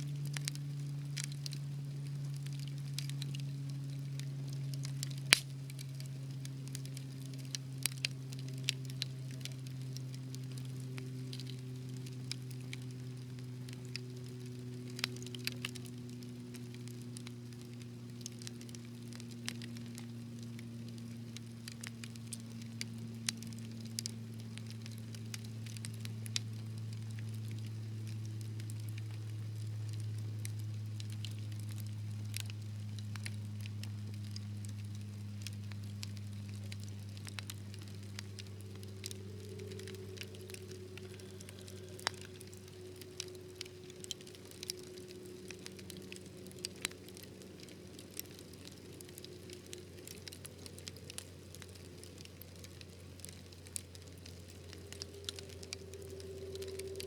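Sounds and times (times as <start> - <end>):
fire pops and snaps: 0.0 - 57.0
wood fire crackling: 0.0 - 57.0
low rumble: 28.8 - 49.2, 54.2 - 57.0.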